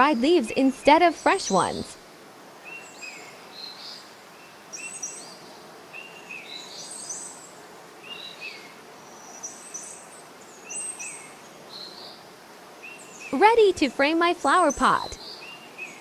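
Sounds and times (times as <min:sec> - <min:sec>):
birds chirping: 0:00.0 - 0:01.9, 0:12.8 - 0:16.0
outdoor ambience hiss: 0:00.0 - 0:16.0.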